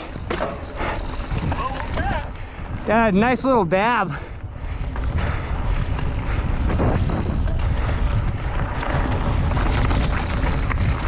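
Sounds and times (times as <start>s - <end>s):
bike knocks and rattles: 0.0s - 2.3s, 6.6s - 11.0s
bike tyre and drivetrain noise: 0.0s - 11.0s
wind rushing over microphone: 0.0s - 11.0s.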